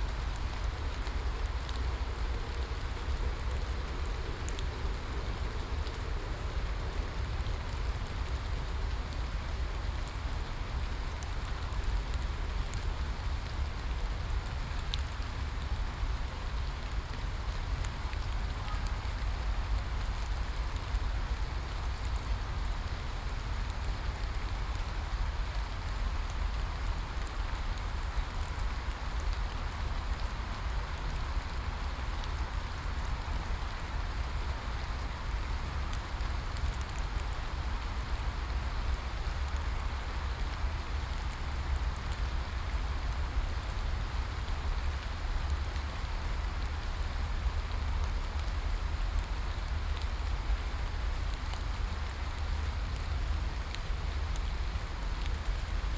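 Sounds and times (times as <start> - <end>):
steady rain falling: 0.0 - 55.9
rain drop ticks: 0.1 - 55.9.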